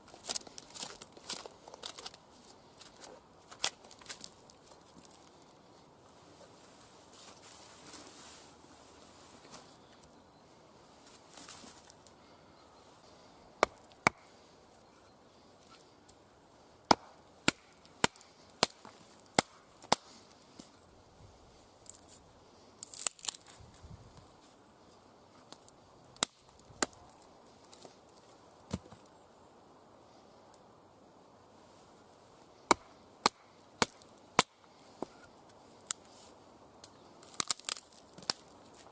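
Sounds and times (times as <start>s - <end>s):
wood crackling rustle: 0.0s - 10.2s, 10.8s - 12.4s, 17.5s - 29.2s, 33.5s - 38.9s.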